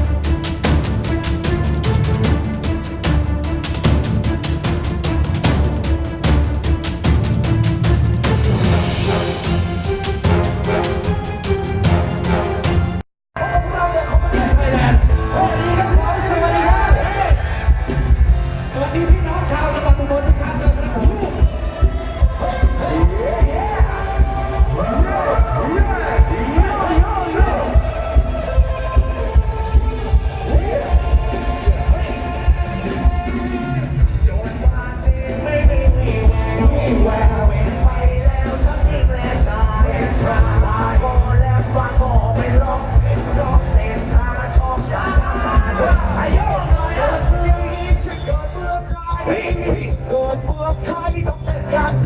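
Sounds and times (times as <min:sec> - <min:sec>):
loud music with pulsing bass: 0:00.0 - 0:52.0
person singing: 0:21.7 - 0:52.0.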